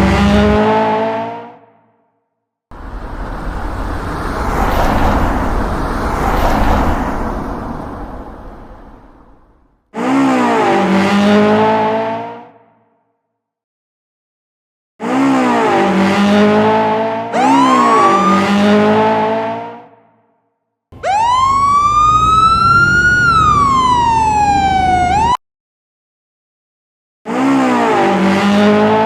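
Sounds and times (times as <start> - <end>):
car engine revving: 0.0 - 1.5, 2.7 - 12.4, 15.0 - 19.8, 27.3 - 29.0
siren wailing: 17.3 - 19.4, 21.0 - 25.4.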